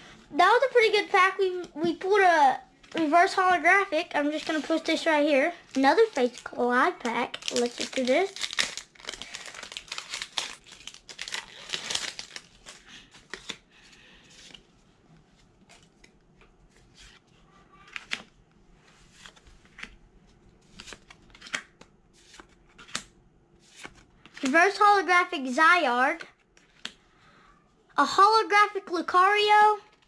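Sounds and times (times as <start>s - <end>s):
foil wrapper crinkling and tearing: 7.2s - 13.6s
trading cards being handled: 17.8s - 24.6s.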